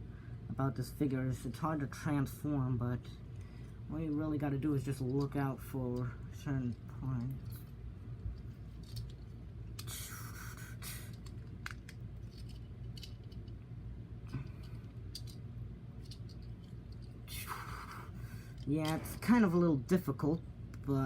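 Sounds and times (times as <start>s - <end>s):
steady low hum: 0.0s - 21.0s
plastic parts clicking and scraping: 6.7s - 13.6s, 14.3s - 15.4s, 16.0s - 17.2s.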